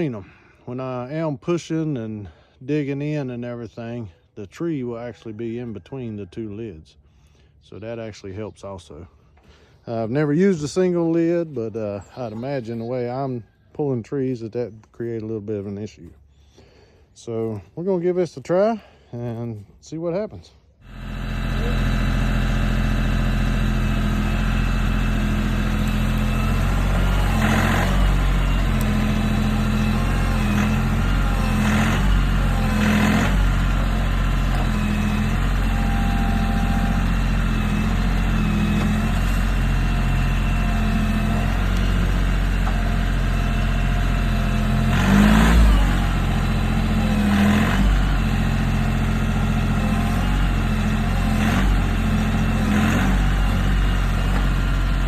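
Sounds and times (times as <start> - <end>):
tractor diesel engine running: 20.8 - 55.0.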